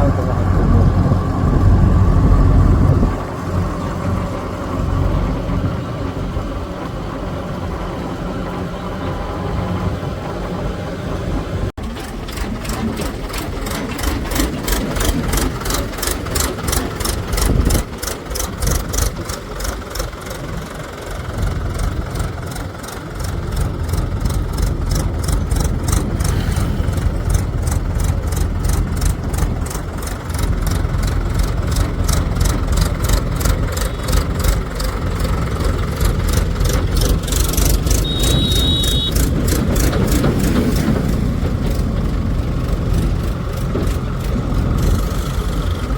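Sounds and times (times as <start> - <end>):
heavy diesel engines running: 0.0 - 45.9
brief high tone: 38.0 - 39.1.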